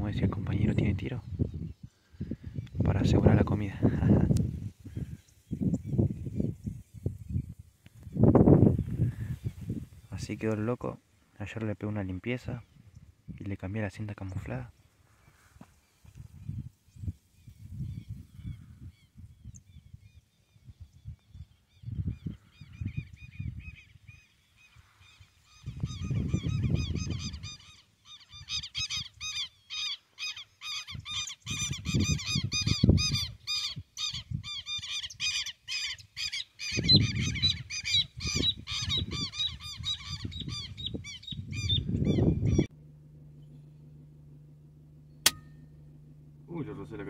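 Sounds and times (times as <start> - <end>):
bird calling harshly: 23.8 - 42.7
low rumbling noise: 40.2 - 47.0.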